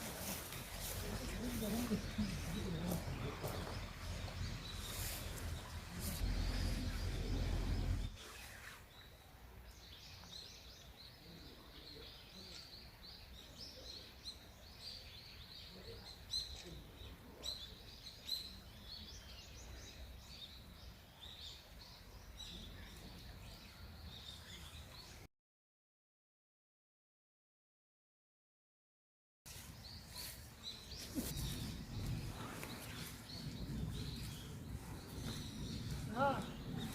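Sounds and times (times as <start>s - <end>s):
small birds chirping: 0.0s - 25.3s, 29.5s - 36.9s
faint low rumble: 0.9s - 8.2s.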